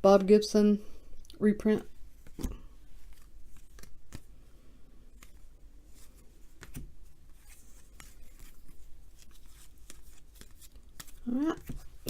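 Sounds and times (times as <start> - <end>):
cards rustling: 2.1 - 12.0
card taps and flicks: 2.2 - 4.3, 6.6 - 6.9.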